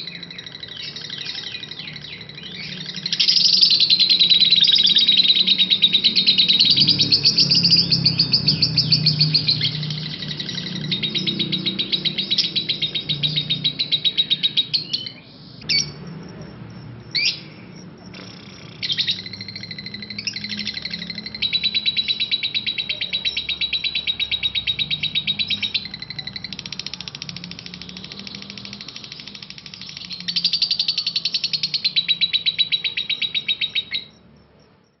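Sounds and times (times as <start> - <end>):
lovebird rattling chirps: 0.0 - 34.2.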